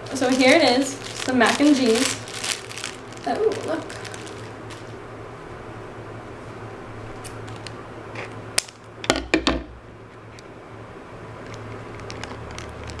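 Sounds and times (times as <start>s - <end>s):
toy packaging handling noises: 0.0s - 5.0s, 7.2s - 8.8s, 11.5s - 13.0s
steady low hum: 0.0s - 13.0s.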